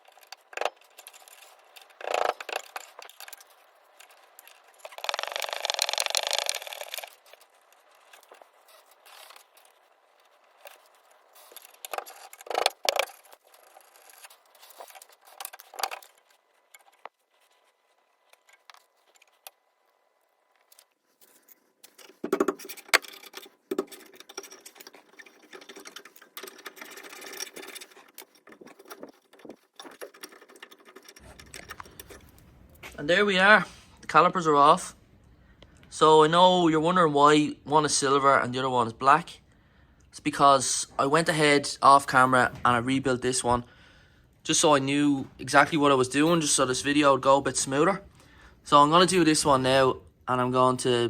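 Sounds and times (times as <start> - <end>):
ratchet clicking: 0.1 - 7.4.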